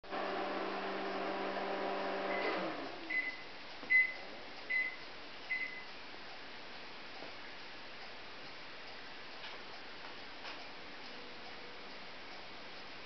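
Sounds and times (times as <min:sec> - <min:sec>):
microwave oven humming: 0:00.0 - 0:05.9
short high-pitched beeps: 0:03.1 - 0:05.9.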